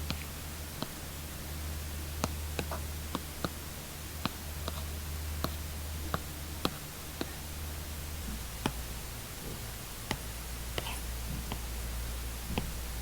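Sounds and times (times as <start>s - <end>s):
steady low hum: 0.0s - 13.0s
stylus tapping on tablet screen: 2.2s - 3.6s, 4.2s - 7.4s, 10.1s - 11.7s, 12.5s - 12.8s.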